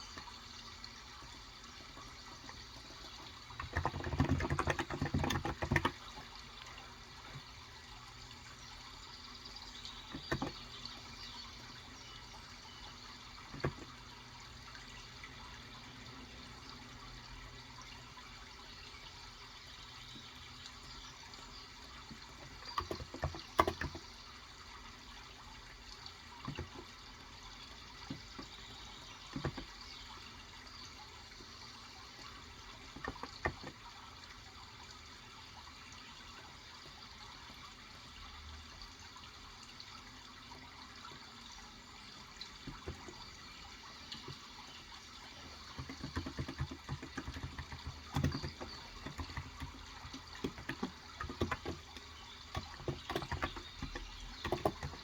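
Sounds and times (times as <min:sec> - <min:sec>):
trickling water: 0:00.0 - 0:55.0
keyboard typing: 0:45.4 - 0:55.0.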